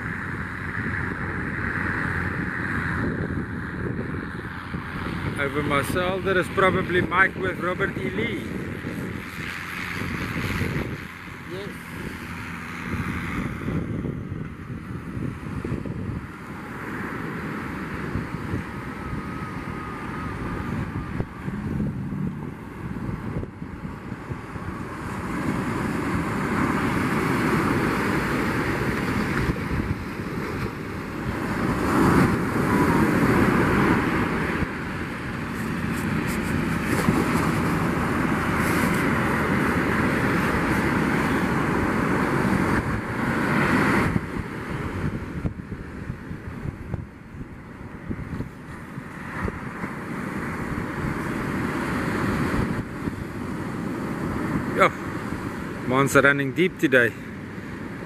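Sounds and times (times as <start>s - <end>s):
wind buffeting microphone: 0.0s - 56.4s
surf breaking on beach: 16.3s - 47.0s.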